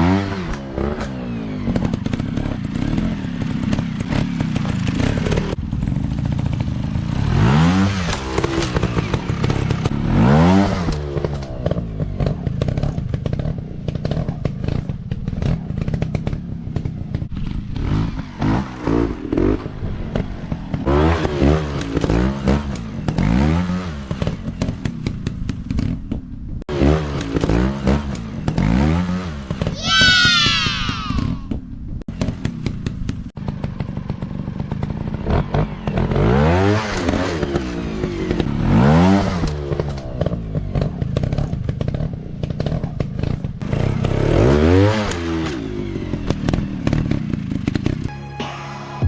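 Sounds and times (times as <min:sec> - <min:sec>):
motorcycle engines revving: 0:00.0 - 0:48.1.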